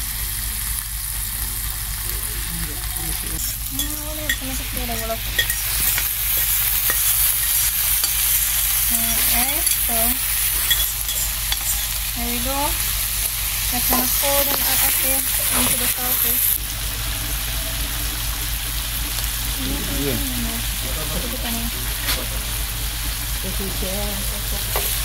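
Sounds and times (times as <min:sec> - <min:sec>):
food sizzling in hot oil: 0:00.0 - 0:25.0
spoon scraping and clicking: 0:05.4 - 0:12.0.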